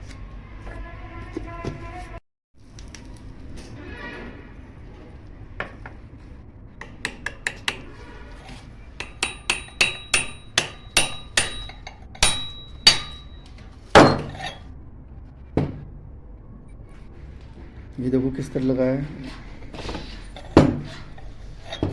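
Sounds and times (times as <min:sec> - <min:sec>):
hammer tapping on metal: 0:06.8 - 0:07.9, 0:09.0 - 0:14.5.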